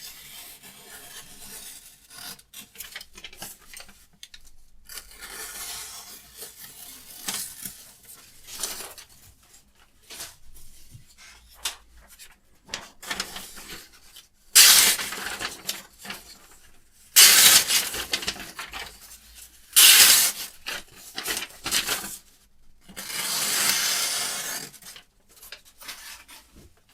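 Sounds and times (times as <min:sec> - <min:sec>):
knife blade scraping: 0:14.6 - 0:15.0, 0:19.8 - 0:20.3.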